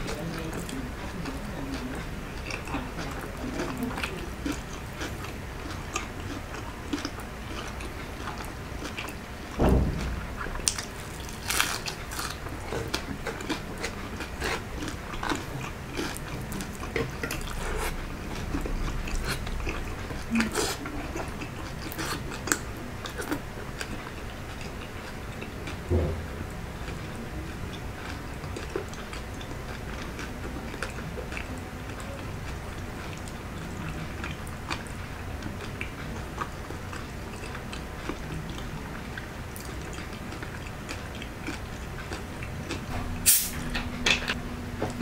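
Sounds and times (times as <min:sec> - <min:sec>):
crunchy chewing and lip smacks: 0:00.1 - 0:09.2, 0:10.0 - 0:25.9, 0:26.8 - 0:43.5
dull thump: 0:09.6 - 0:10.2, 0:25.9 - 0:26.4.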